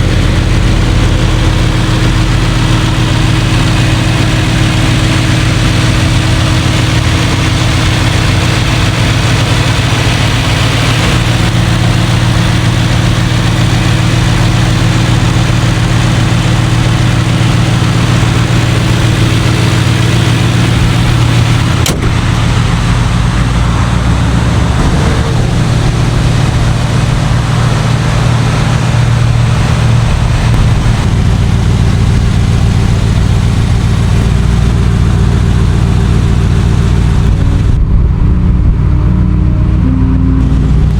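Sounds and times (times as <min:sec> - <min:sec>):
car engine idling: 0:00.0 - 0:40.9
sharp click: 0:21.8 - 0:22.2.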